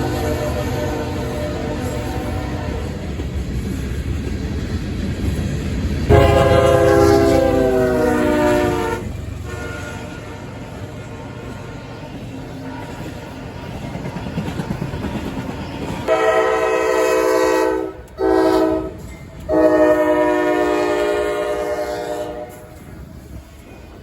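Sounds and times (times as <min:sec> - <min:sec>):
locomotive air horn blasts: 0:00.0 - 0:03.0, 0:06.1 - 0:11.7, 0:16.1 - 0:22.8
train rumbling: 0:00.0 - 0:24.0.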